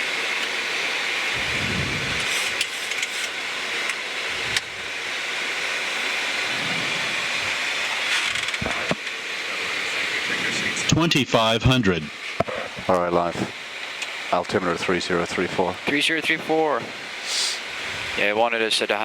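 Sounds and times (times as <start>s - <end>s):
steady rushing noise: 1.4s - 3.6s, 4.2s - 13.6s.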